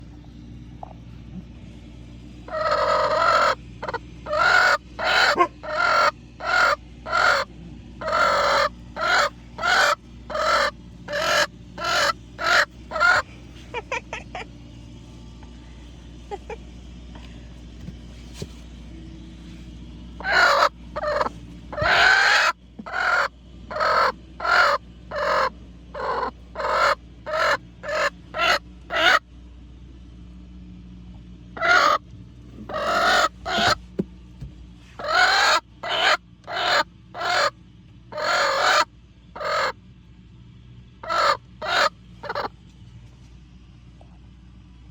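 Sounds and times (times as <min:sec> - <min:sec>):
faint low hum: 0:00.0 - 0:44.9
chicken cackling loudly: 0:02.4 - 0:14.5, 0:20.2 - 0:29.2, 0:31.6 - 0:32.0, 0:32.6 - 0:33.8, 0:35.0 - 0:39.8, 0:41.0 - 0:42.5.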